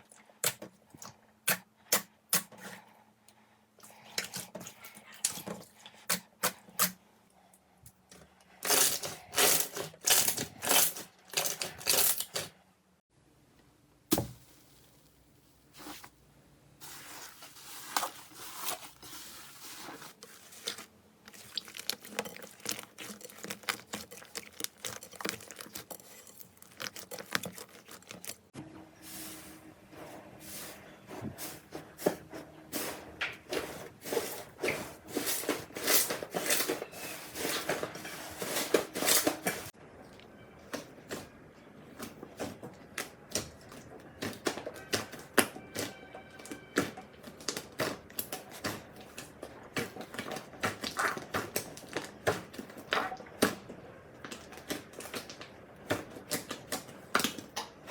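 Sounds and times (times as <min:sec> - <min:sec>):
slime crackling and squishing: 0:16.8 - 0:28.5, 0:42.0 - 0:57.7.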